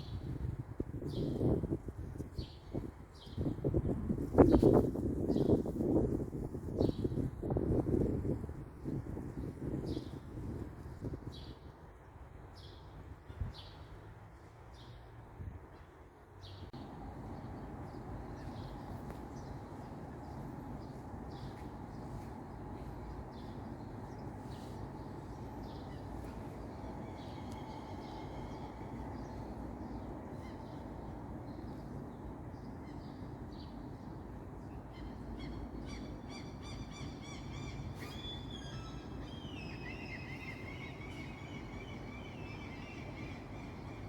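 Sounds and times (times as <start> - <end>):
songbirds chirping: 14.7 - 44.0
low background rumble: 16.7 - 37.8.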